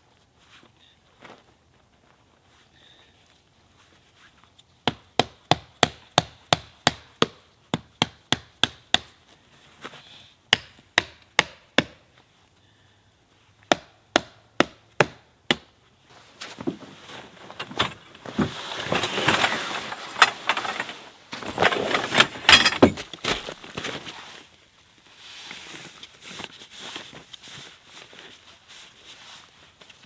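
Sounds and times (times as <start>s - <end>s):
axe chopping wood: 4.8s - 9.2s, 10.5s - 12.0s, 13.7s - 15.7s.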